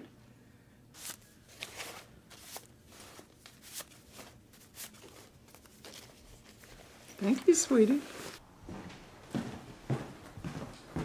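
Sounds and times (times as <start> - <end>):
paper money rustling: 1.0 - 8.4.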